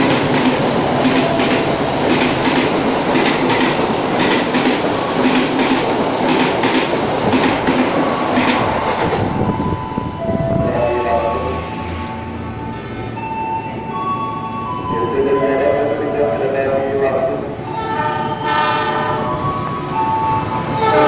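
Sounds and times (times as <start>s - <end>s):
wheels clacking over rail joints: 0.0s - 9.3s
train rail rumble: 0.0s - 21.0s.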